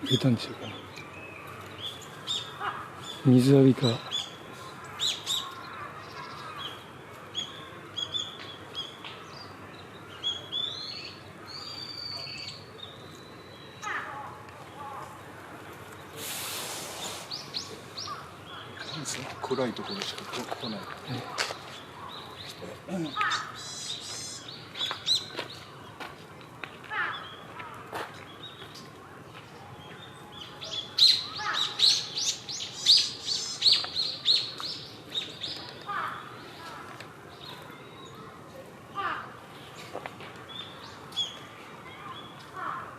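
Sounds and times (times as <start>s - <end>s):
small birds chirping: 0.0s - 42.9s
small bird calling: 16.2s - 25.4s, 30.4s - 38.3s.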